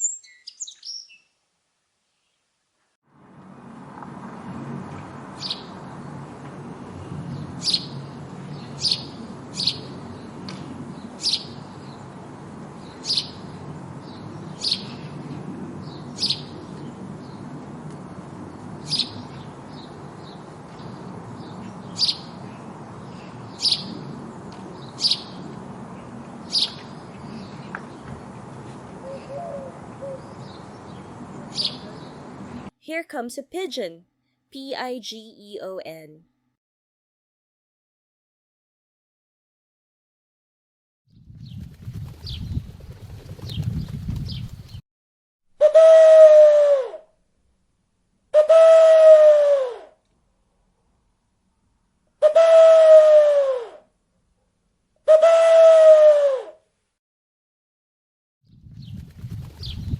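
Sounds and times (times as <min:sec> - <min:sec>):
sparrow chirping: 0:00.0 - 0:01.3, 0:07.6 - 0:08.0, 0:08.6 - 0:09.9, 0:11.2 - 0:11.6, 0:12.8 - 0:13.4, 0:14.1 - 0:15.0, 0:15.8 - 0:17.4, 0:18.9 - 0:22.4, 0:23.1 - 0:24.0, 0:24.8 - 0:25.4, 0:26.5 - 0:27.6, 0:30.2 - 0:32.2, 0:43.4 - 0:44.8, 0:59.6 - 0:59.9.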